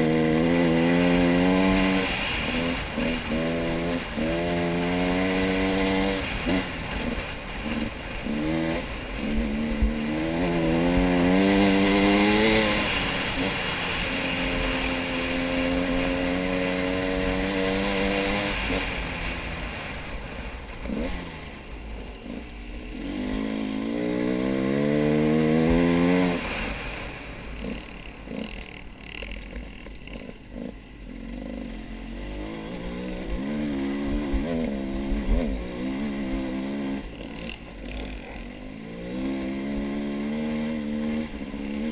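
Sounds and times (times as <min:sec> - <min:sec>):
vehicle engine speeding up: 0:00.0 - 0:28.6.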